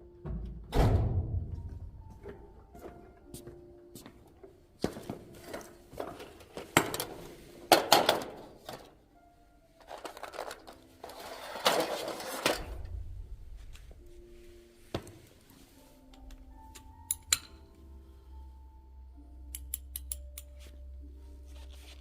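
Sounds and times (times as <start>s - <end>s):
faint background music: 0.0s - 22.0s
metal parts and tools knocking: 17.0s - 17.7s.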